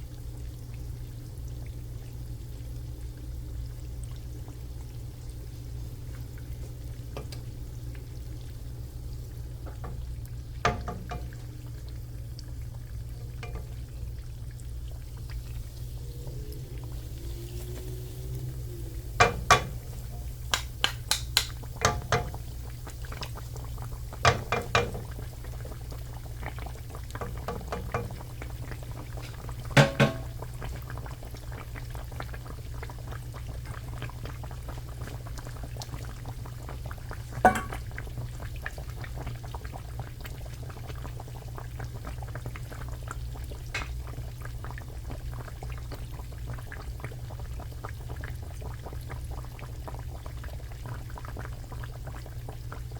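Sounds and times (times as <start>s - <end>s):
oil sizzling and crackling: 0.1s - 52.9s
utensil knocks: 19.2s - 19.9s, 20.5s - 22.4s, 29.8s - 30.3s.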